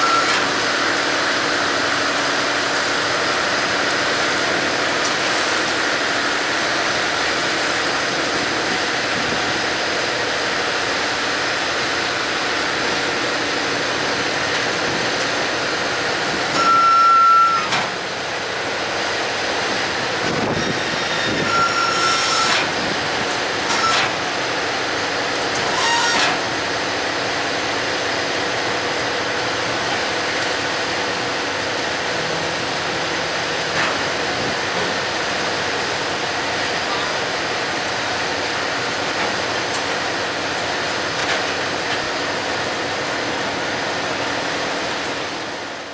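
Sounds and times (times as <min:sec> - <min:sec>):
short squeals: 0:20.5 - 0:22.7, 0:23.7 - 0:24.1, 0:25.6 - 0:26.4.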